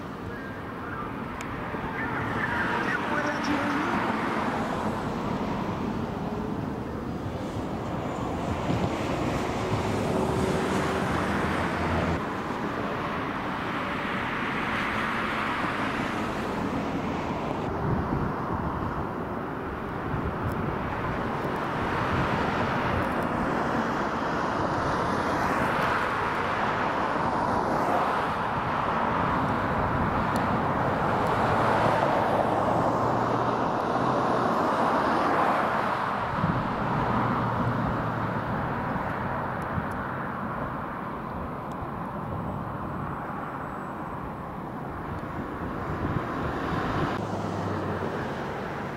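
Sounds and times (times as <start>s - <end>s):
traffic rushing: 0.0s - 48.9s.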